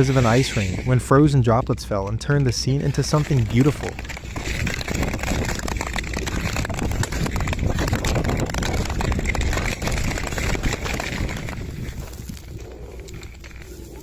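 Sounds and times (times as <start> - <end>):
low steady rumble: 0.0 - 10.4
ice pellets ticking: 0.0 - 13.7.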